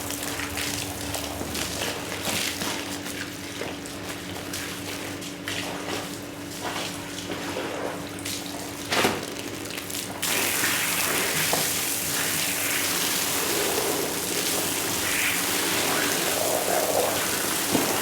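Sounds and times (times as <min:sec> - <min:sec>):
water running and splashing: 0:10.2 - 0:18.0
strong water spray hissing: 0:10.3 - 0:18.0.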